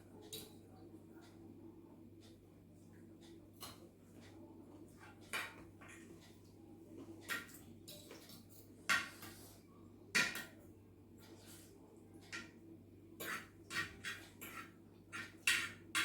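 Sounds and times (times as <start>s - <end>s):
utensils clinking against dishes: 7.3s - 9.5s.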